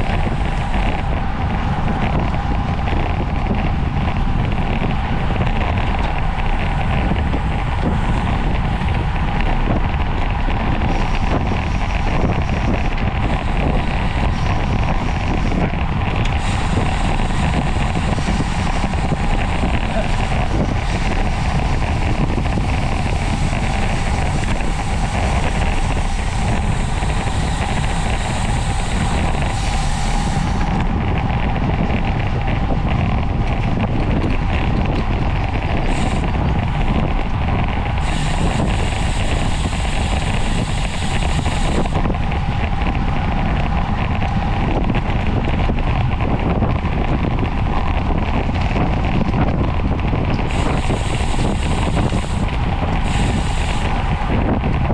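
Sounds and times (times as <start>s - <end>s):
faint hum: 0.0s - 49.1s, 49.7s - 54.9s
wind buffeting microphone: 0.0s - 54.9s
high hiss: 16.4s - 30.8s, 38.0s - 42.1s, 50.5s - 54.3s.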